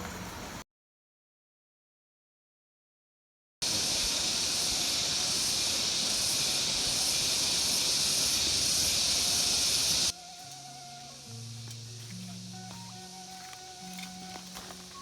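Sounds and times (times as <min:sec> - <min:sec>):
heavy rain hissing: 0:03.6 - 0:15.0.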